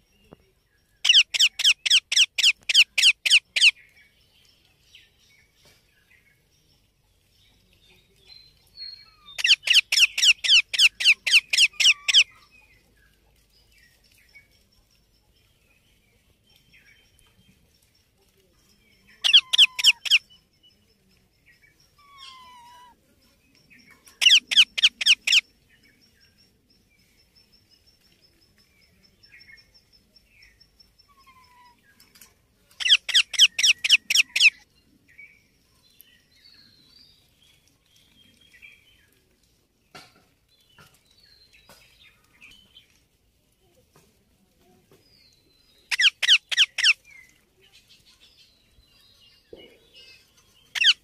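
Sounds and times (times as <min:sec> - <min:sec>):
soft chirps: 0:00.0 - 0:39.5, 0:44.6 - 0:51.0
parrot screeching: 0:19.2 - 0:20.2, 0:22.0 - 0:22.9.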